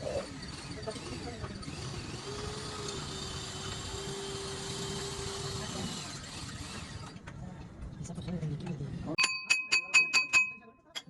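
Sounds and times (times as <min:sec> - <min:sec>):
machine whining: 0:00.0 - 0:07.3.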